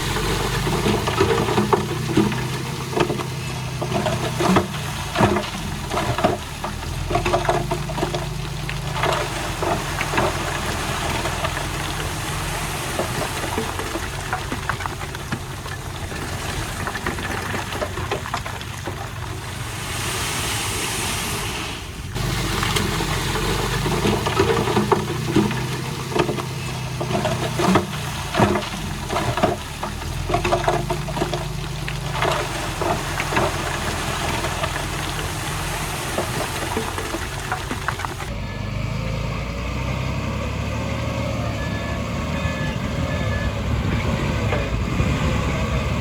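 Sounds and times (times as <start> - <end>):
metallic clanks and knocks: 0.0 - 19.6, 22.2 - 38.3
diesel engine running: 0.0 - 46.0.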